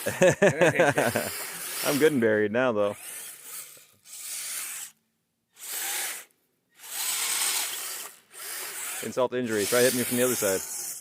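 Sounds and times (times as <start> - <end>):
toy electric motor whirring: 0.8 - 5.0, 5.6 - 11.0.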